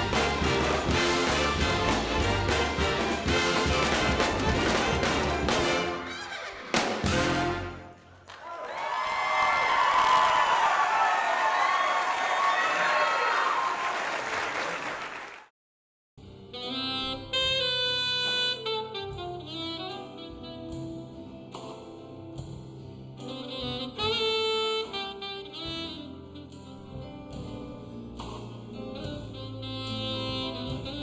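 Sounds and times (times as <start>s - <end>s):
big band swing jazz: 0.0s - 8.0s, 16.5s - 22.6s, 23.2s - 31.0s.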